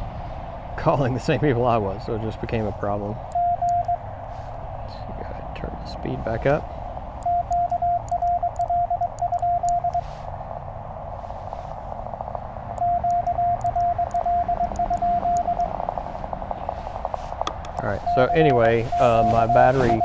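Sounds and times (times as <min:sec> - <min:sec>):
radio band noise hiss: 0:00.8 - 0:03.4, 0:04.0 - 0:07.2, 0:13.5 - 0:20.0
faint morse signals: 0:00.8 - 0:10.3, 0:11.3 - 0:20.0
morse code sidetone beeps: 0:03.3 - 0:04.1, 0:06.3 - 0:10.2, 0:12.7 - 0:20.0.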